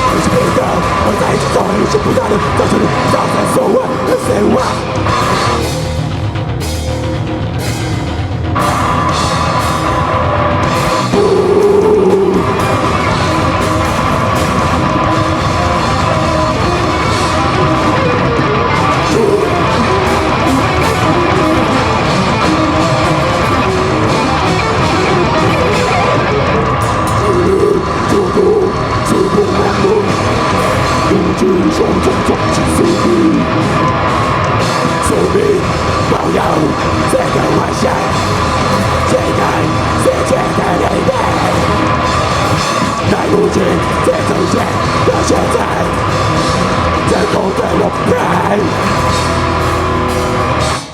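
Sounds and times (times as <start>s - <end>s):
person yelling or singing: 0.0s - 5.2s, 11.0s - 13.6s, 15.0s - 26.1s, 27.2s - 33.7s, 34.9s - 49.2s
distorted electric guitars: 0.0s - 50.9s
drum kit: 0.0s - 50.9s.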